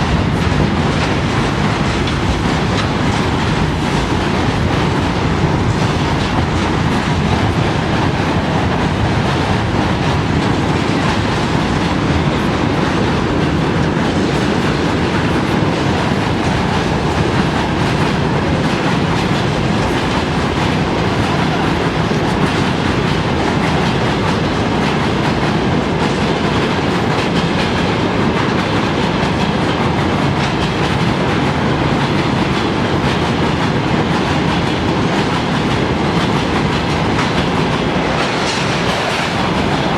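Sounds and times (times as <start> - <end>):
freight train rumbling over bridge: 0.0 - 39.9
wheels clickety-clack over rail joints: 0.0 - 39.9.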